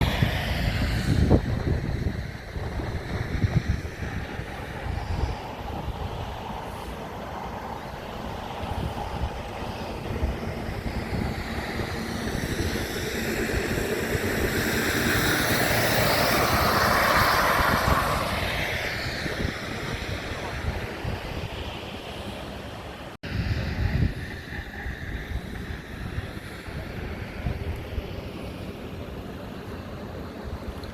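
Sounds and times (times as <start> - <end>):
vehicle passing: 0.0 - 23.0
wind rumbling on microphone: 0.0 - 30.9.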